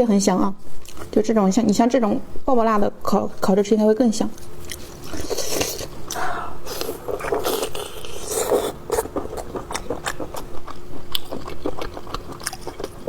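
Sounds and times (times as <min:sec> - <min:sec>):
faint steady hum: 0:00.0 - 0:13.0
person chewing food: 0:04.4 - 0:13.0.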